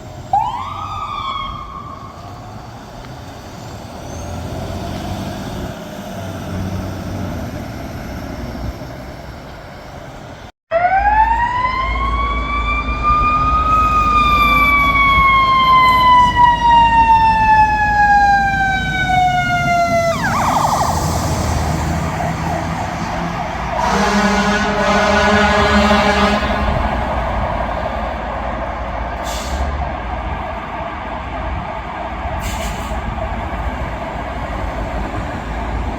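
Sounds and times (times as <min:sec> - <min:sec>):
fire engine siren: 0:00.0 - 0:03.4, 0:10.7 - 0:35.9
traffic and truck noise: 0:00.0 - 0:35.9
horn blast: 0:23.7 - 0:27.1.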